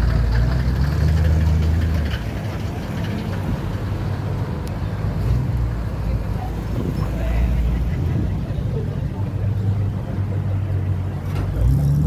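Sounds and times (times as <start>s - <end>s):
car engine rumbling: 0.0s - 12.0s.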